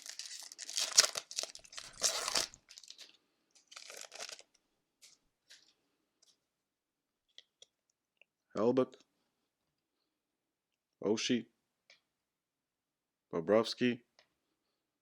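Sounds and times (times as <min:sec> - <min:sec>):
wrapper tearing and crinkling: 0:00.0 - 0:04.5.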